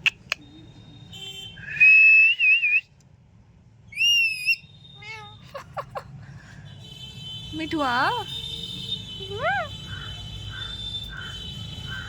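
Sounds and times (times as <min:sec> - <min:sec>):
parrot whistling: 0:04.0 - 0:05.2
parrot wavering call: 0:04.0 - 0:05.3, 0:09.3 - 0:11.3.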